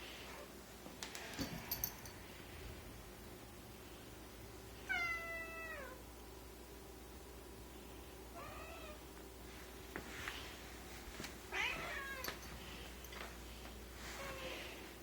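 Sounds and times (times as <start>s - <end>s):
cat meowing: 11.5s - 12.3s.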